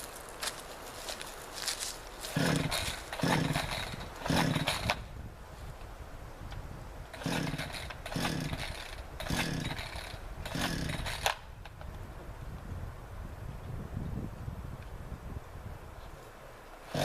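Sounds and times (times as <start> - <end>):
chainsaw pull-start cord whirring: 2.3 - 5.0, 7.1 - 11.5, 16.8 - 17.0.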